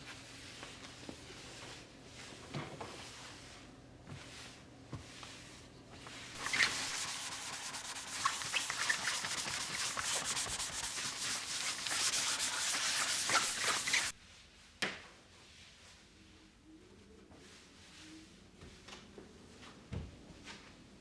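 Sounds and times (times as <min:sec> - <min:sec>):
scratchy rubbing sound: 0:06.3 - 0:14.1.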